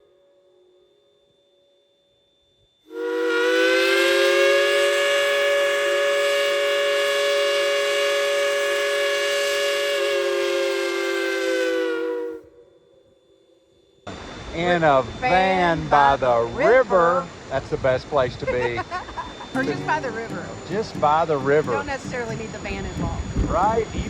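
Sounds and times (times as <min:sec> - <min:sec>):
steam locomotive whistle: 0:02.8 - 0:13.4, 0:19.5 - 0:23.8.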